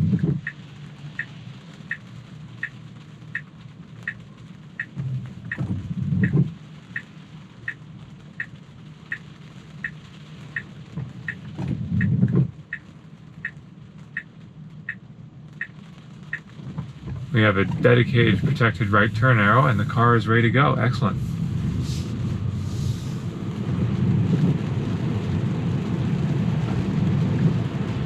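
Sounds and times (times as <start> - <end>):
windshield wipers swishing: 0.0 - 14.3, 14.9 - 28.0
turn signal ticking: 0.0 - 21.8.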